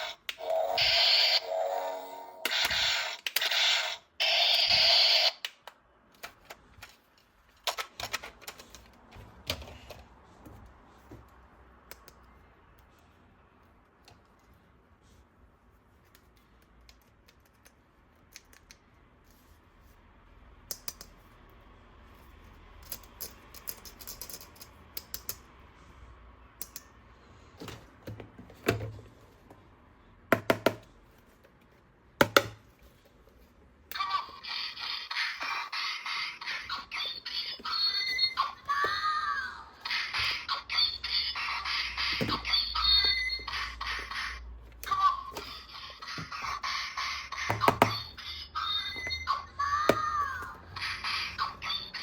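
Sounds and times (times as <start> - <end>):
plastic toys clicking: 4.7 - 9.0, 22.8 - 25.4.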